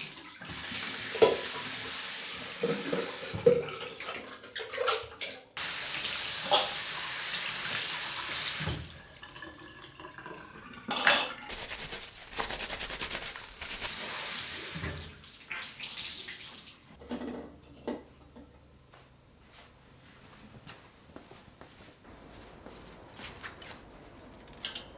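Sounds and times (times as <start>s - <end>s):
tap water running into sink: 0.0s - 16.8s.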